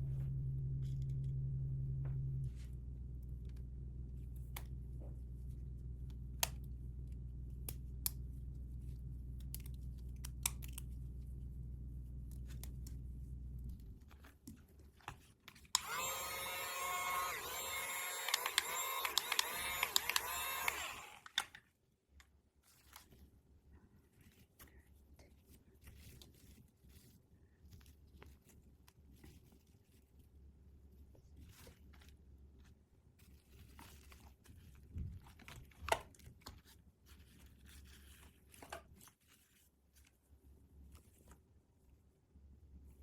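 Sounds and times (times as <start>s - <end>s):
steady low hum: 0.0s - 14.2s
toy packaging clicks and taps: 15.5s - 21.6s.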